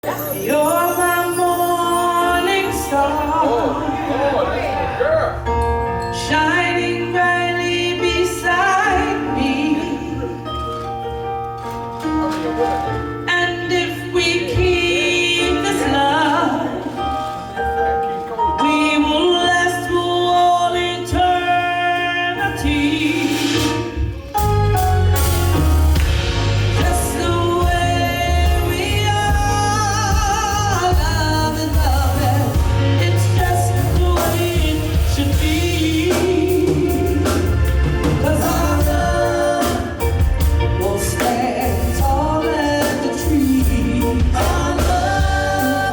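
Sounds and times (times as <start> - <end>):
live band playing: 0.0 - 45.9
person singing: 26.8 - 45.9.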